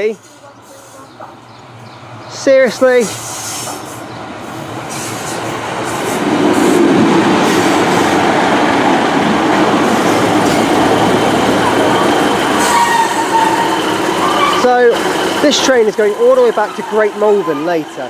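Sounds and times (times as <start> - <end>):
diesel train rumbling: 0.0 - 18.0.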